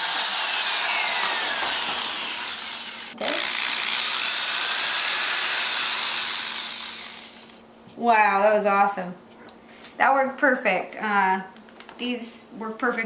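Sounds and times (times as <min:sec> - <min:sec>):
power drill boring into pumpkin: 0:00.0 - 0:07.6.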